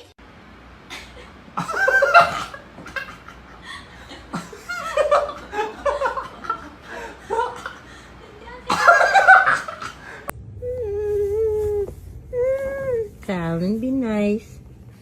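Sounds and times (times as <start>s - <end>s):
person laughing: 0.9s - 10.2s.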